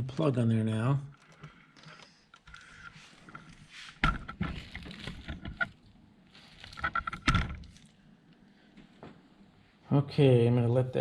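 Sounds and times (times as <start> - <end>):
rustling and hissing: 3.0 - 5.1.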